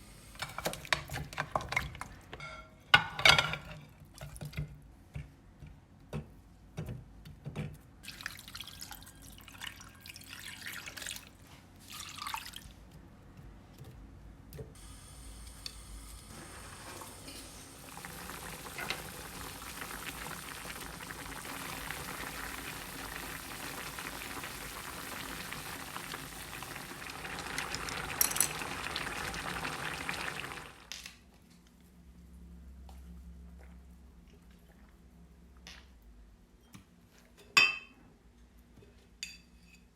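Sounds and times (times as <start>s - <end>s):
kitchen tap running: 15.4s - 30.9s.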